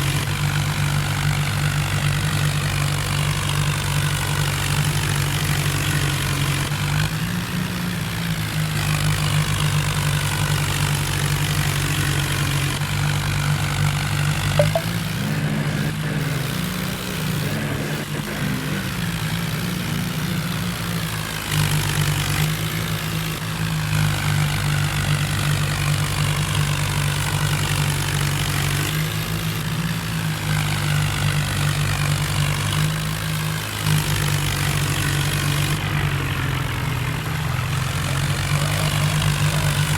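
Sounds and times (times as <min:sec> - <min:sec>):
tractor diesel engine running: 0:29.2 - 0:39.9.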